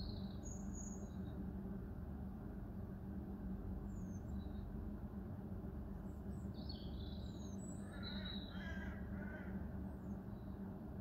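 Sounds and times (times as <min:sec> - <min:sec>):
lower fuller bird calls: 0:00.0 - 0:01.4, 0:06.5 - 0:10.6
low background hum: 0:00.0 - 0:11.0.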